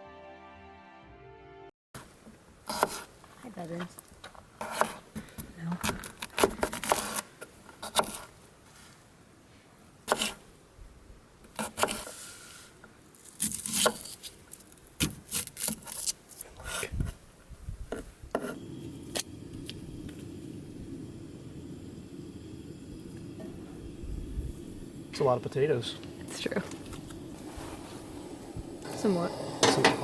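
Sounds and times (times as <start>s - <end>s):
knife chopping potatoes on board: 2.7s - 3.0s, 7.8s - 8.3s, 10.1s - 10.4s, 11.6s - 12.1s.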